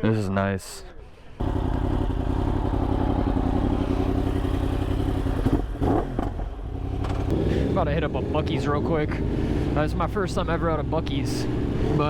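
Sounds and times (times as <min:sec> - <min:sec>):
motorcycle engine running: 0:01.4 - 0:09.7.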